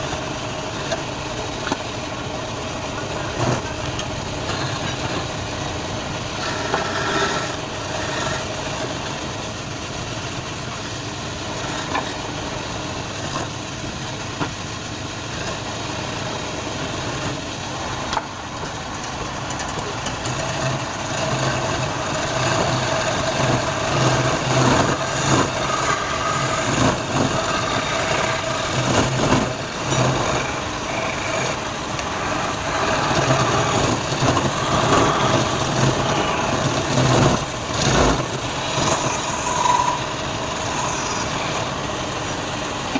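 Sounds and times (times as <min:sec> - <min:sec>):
wood lathe running: 0:00.0 - 0:42.9
turning tool scraping wood: 0:03.0 - 0:09.2, 0:18.0 - 0:42.9.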